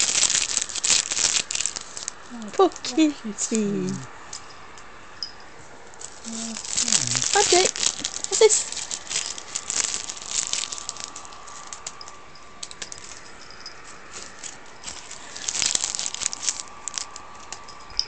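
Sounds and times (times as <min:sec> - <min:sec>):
rubbish crinkling and rattling: 0:00.0 - 0:03.0, 0:05.8 - 0:18.0
faint steady whine: 0:00.0 - 0:18.0.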